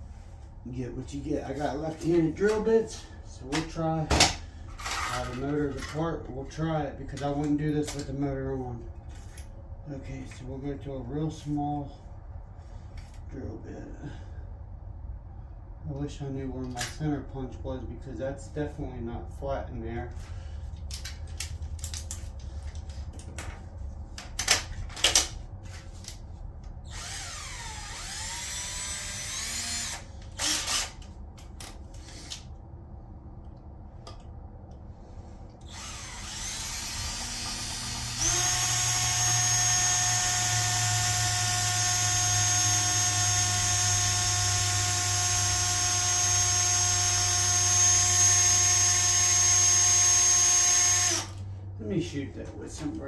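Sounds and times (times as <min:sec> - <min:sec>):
electric drill whine: 0:26.9 - 0:31.1, 0:35.7 - 0:51.4.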